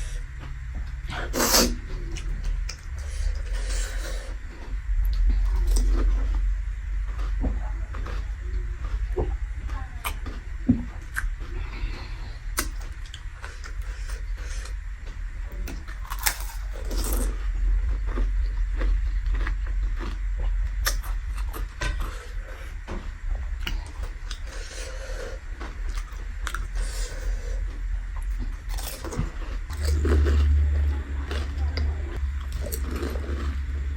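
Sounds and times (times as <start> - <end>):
steady low rumble: 0.0 - 33.9
chewing with wet clicks: 18.1 - 22.0, 23.6 - 24.8, 31.2 - 33.7.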